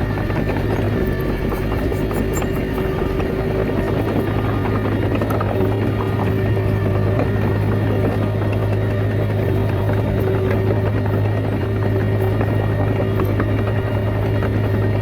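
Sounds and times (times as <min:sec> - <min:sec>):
bulldozer diesel engine humming: 0:00.0 - 0:15.0.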